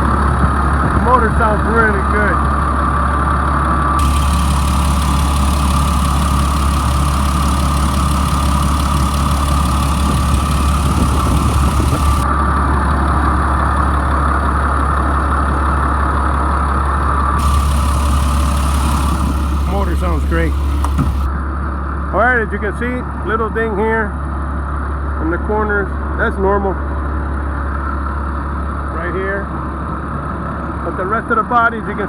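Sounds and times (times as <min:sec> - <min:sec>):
diesel bus engine idling: 0:00.0 - 0:21.3.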